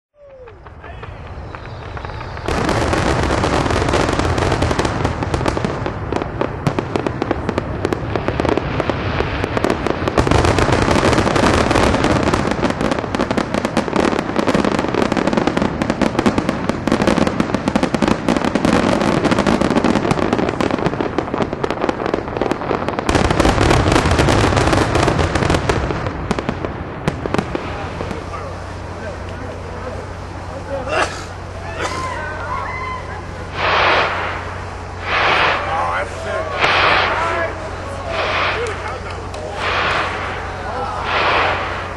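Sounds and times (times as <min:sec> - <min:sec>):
fireworks crackling bangs: 0:00.2 - 0:41.9.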